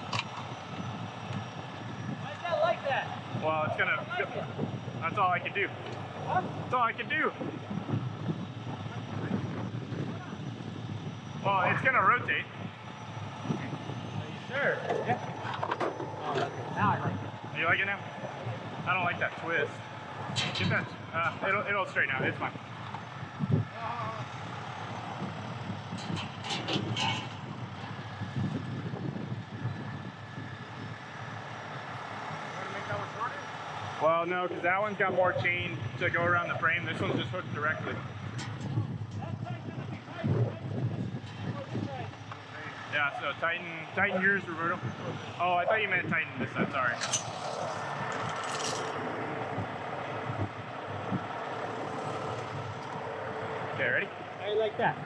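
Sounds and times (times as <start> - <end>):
heavy truck engine running: 0.0 - 55.0
metal chain clinking: 47.0 - 49.0.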